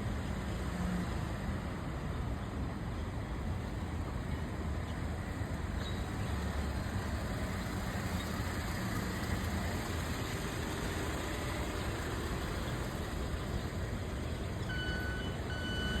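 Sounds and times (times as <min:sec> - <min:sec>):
road traffic rumble: 0:00.0 - 0:16.0
electronic beep: 0:14.7 - 0:16.0.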